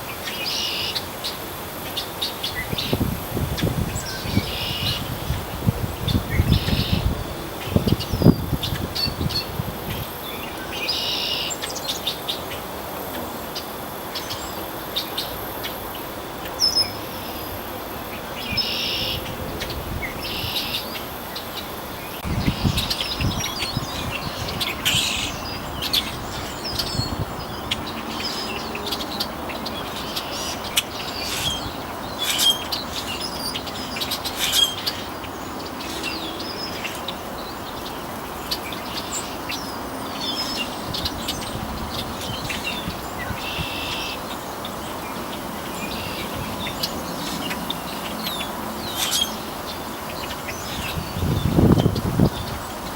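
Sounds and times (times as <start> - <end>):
birds chirping: 0.2 - 52.9
harsh bird calls: 18.4 - 52.9.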